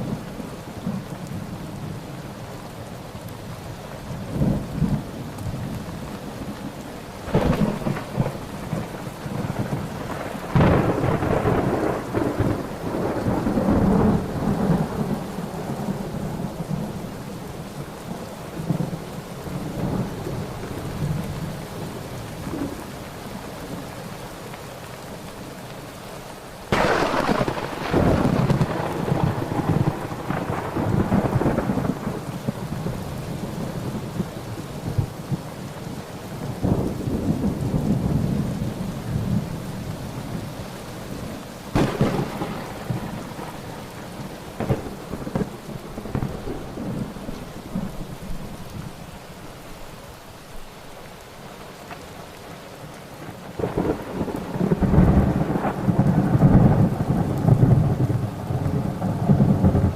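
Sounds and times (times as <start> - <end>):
steady rain: 0.0 - 59.9
sharp thunder crack: 7.3 - 15.2, 26.7 - 32.3, 41.7 - 43.6, 44.6 - 47.2
rolling thunder: 7.3 - 16.9, 26.7 - 35.4, 41.7 - 48.9, 53.2 - 59.9.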